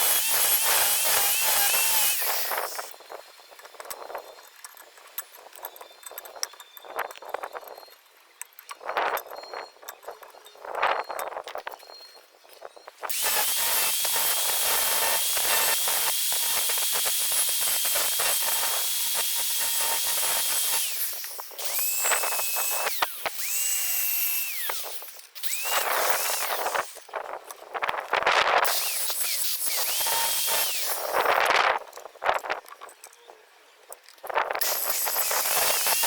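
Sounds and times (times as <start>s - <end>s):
power tool motor whining: 0.0s - 4.4s, 13.1s - 27.1s, 28.6s - 31.5s, 34.6s - 36.0s.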